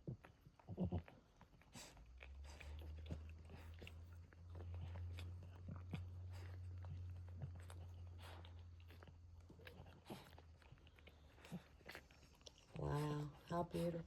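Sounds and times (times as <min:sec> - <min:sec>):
dog licking puppies: 0:00.0 - 0:14.0.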